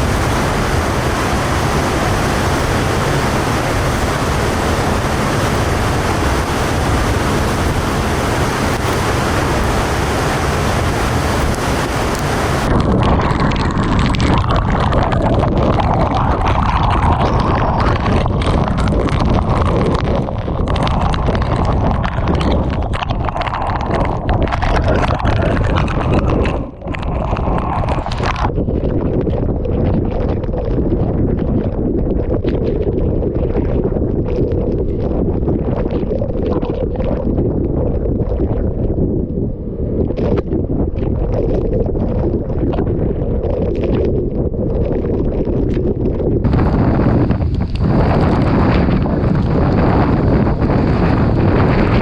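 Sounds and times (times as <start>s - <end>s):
torrential rain: 0.0s - 26.1s, 46.4s - 52.0s
wind buffeting microphone: 0.0s - 52.0s.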